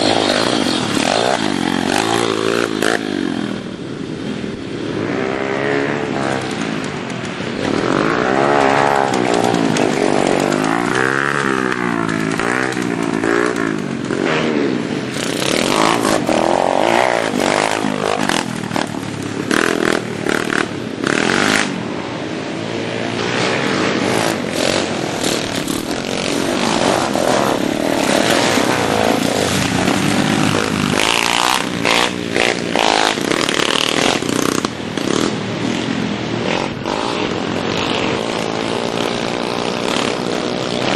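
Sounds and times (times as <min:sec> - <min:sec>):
minibike engine revving: 0:00.0 - 0:40.9
knocks and clatter: 0:06.4 - 0:14.2.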